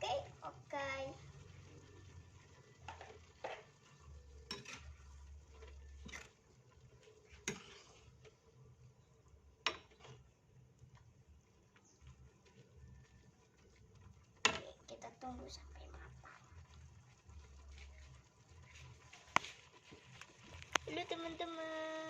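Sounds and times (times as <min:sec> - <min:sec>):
utensil clinking and scraping pan: 0:02.8 - 0:06.4, 0:07.0 - 0:08.4.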